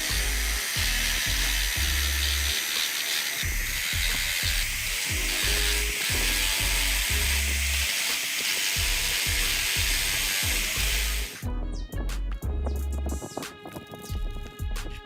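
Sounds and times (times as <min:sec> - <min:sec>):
music with heavy bass beat: 0:08.8 - 0:15.0.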